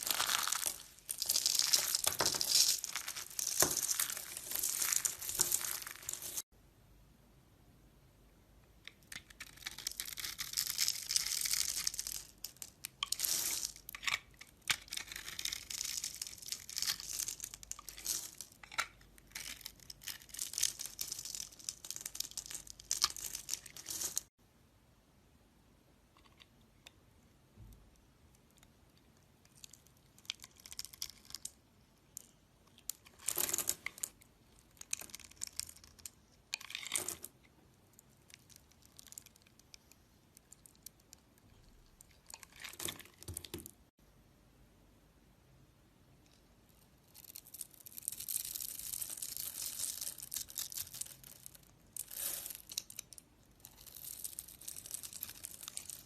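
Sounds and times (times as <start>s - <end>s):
knife carving soap: 9.0s - 12.0s, 12.8s - 17.0s.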